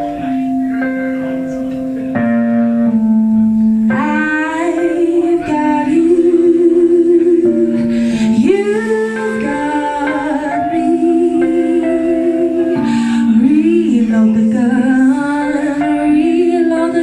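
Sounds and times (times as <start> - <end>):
guitar chords: 0.0 - 17.0
woman singing with vibrato: 3.9 - 17.0.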